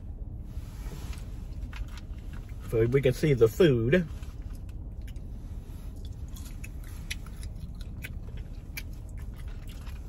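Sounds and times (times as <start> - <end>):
low steady hum: 0.0 - 10.0
person chewing: 6.0 - 10.0.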